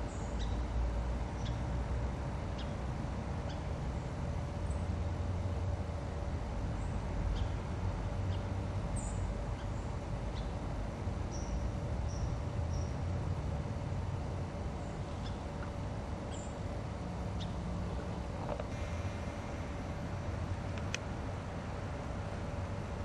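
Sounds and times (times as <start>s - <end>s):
small birds chirping: 0.0s - 0.6s, 6.7s - 10.6s, 11.2s - 13.1s, 14.7s - 16.6s, 17.2s - 18.3s
faint constant hum: 0.0s - 23.0s
steady low rumble: 4.6s - 23.0s.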